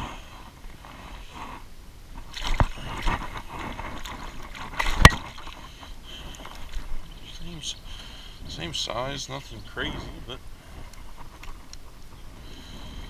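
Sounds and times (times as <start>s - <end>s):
water splashing: 2.2s - 10.0s.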